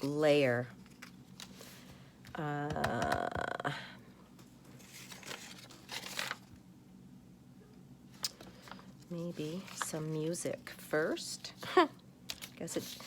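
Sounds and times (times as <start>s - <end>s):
woman humming: 2.4s - 4.0s
paper rustling and crinkling: 4.7s - 6.6s, 8.2s - 10.8s, 12.3s - 13.0s.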